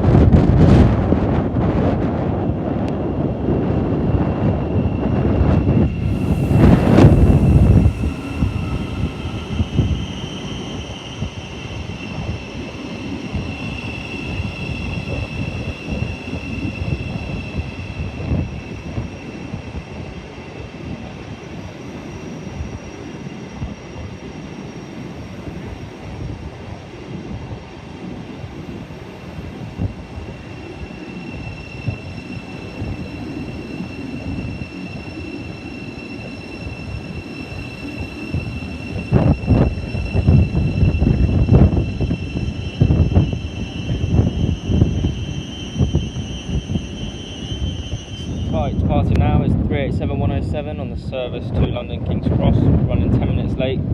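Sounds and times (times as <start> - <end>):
wind buffeting microphone: 0.0 - 24.5, 36.2 - 53.9
train high-pitched whine: 0.0 - 53.9.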